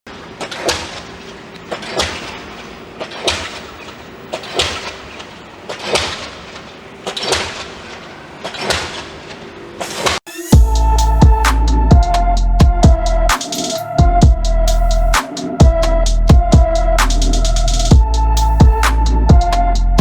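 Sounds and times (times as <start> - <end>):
music with a beat: 10.3 - 20.0.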